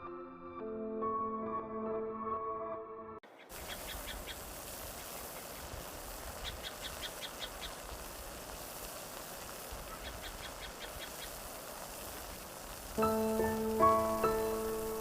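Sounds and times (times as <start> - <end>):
steady outdoor hiss: 3.3 - 15.0.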